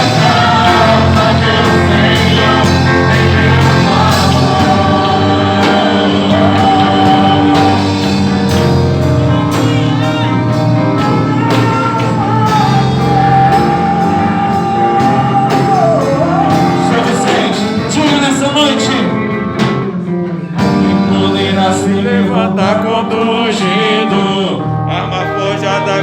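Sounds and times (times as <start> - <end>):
person singing long notes: 0.0 - 19.2
band with drums playing: 0.0 - 22.8.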